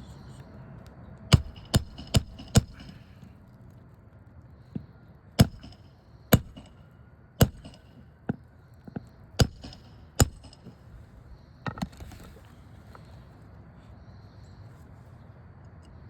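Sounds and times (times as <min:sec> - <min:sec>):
hammer striking nails: 0:01.3 - 0:03.1, 0:04.7 - 0:06.8, 0:07.4 - 0:10.8.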